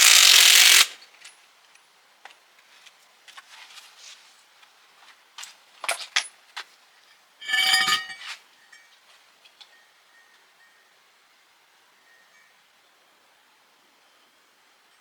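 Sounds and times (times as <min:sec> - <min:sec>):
metal tools clinking: 0:07.4 - 0:08.4
ringing metal clank: 0:07.4 - 0:08.4.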